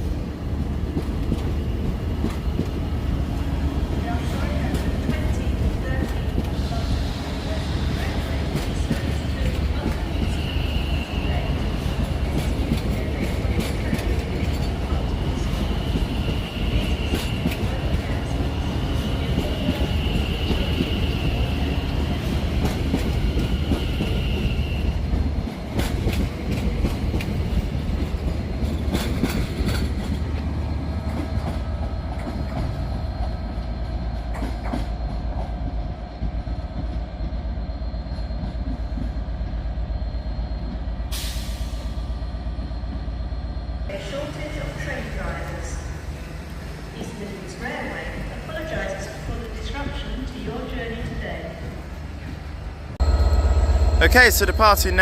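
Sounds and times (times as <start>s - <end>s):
train equipment humming: 0.0s - 55.0s
train wheels clattering over rail joints: 25.1s - 30.4s.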